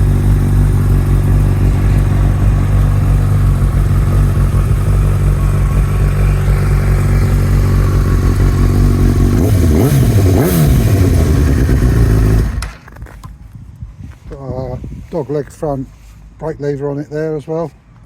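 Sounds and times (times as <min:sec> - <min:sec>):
engine blipped: 0:00.0 - 0:12.7
motorcycle engine idling: 0:00.0 - 0:12.8.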